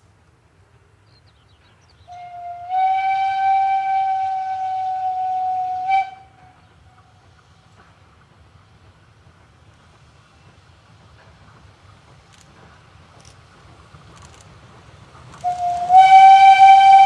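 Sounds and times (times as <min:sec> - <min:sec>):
steam locomotive whistle: 0:02.1 - 0:06.7, 0:15.4 - 0:17.0.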